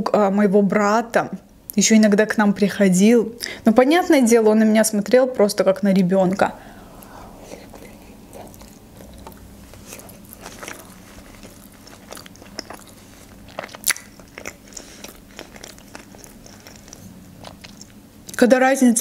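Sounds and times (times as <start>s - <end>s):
wet chewing clicks and smacks: 7.8s - 18.4s.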